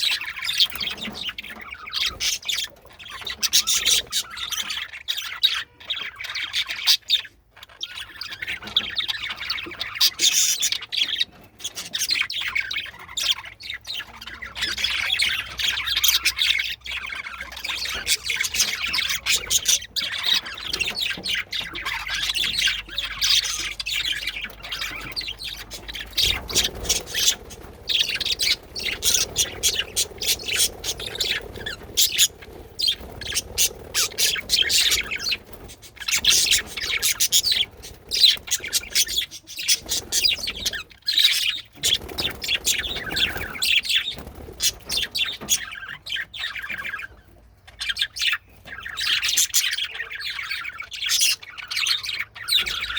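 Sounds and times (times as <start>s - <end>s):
budgerigars chattering: 0.0s - 52.9s.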